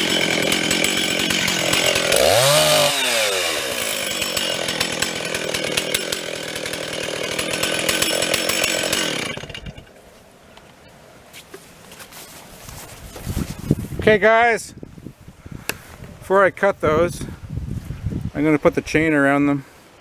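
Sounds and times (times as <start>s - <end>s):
chainsaw cutting wood: 0.0s - 10.1s.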